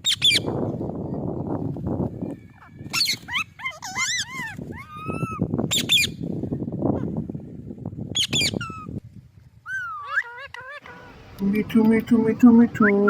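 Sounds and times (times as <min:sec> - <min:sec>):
parrot squawking: 0:02.6 - 0:06.1, 0:09.7 - 0:13.0.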